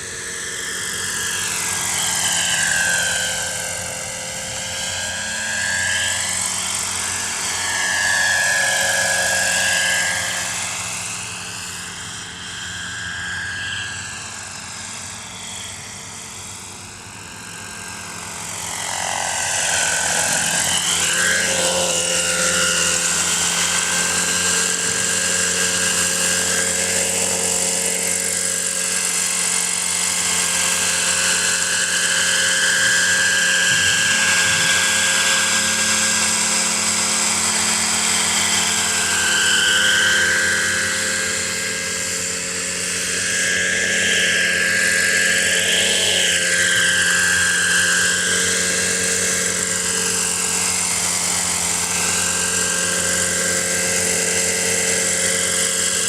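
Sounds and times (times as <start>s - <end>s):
model helicopter engine whine: 0.0s - 56.0s.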